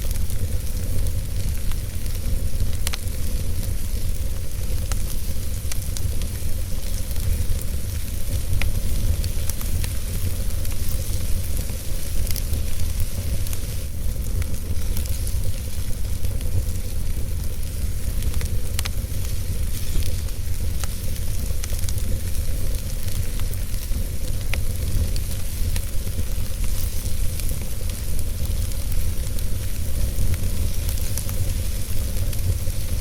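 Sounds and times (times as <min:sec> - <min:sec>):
fire flames rumbling and hissing: 0:00.0 - 0:33.0
logs crackling and popping: 0:00.0 - 0:33.0.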